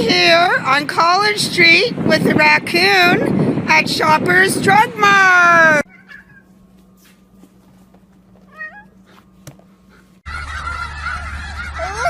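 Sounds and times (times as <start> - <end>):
loud steady rumble: 0.0 - 5.8
wavering cat-like animal call: 5.9 - 6.6, 8.5 - 9.0
honking fowl calls: 10.3 - 12.0.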